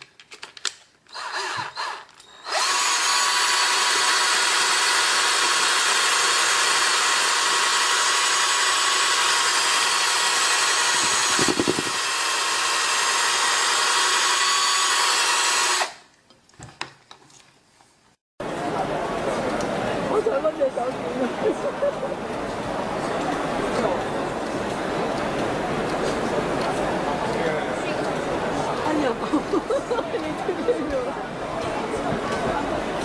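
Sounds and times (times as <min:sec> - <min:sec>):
small electric motor whirring: 0:01.1 - 0:16.0.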